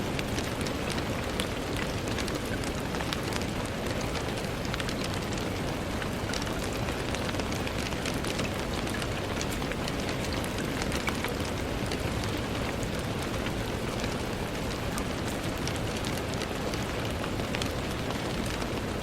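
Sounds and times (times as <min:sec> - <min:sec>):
rain on a window: 0:00.0 - 0:19.0.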